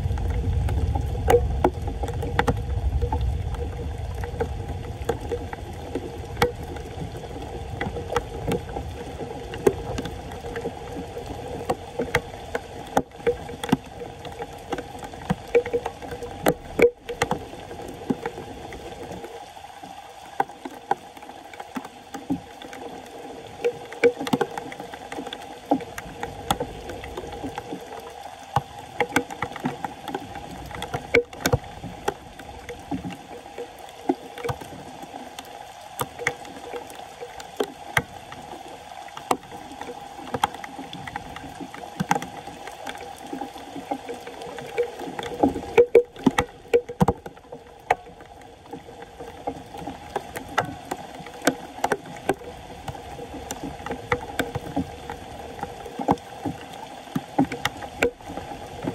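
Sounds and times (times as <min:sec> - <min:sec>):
water gurgling at a drain: 0:00.0 - 0:58.9.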